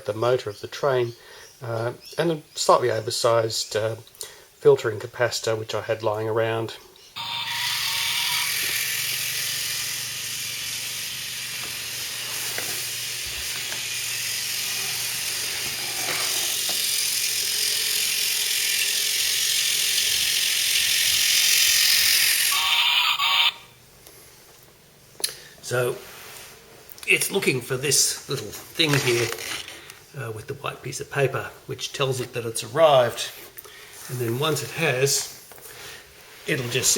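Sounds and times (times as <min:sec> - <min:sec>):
toy train motor whirring: 0:07.2 - 0:23.7.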